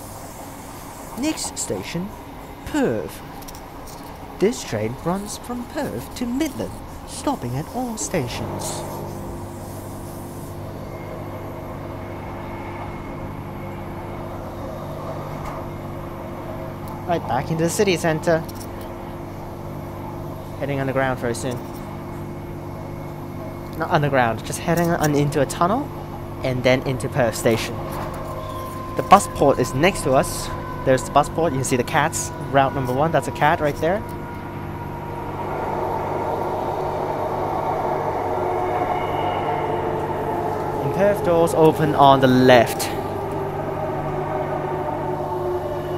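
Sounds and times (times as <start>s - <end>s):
electric train hum: 0.0s - 45.9s
wheels rumbling on rails: 18.4s - 45.9s.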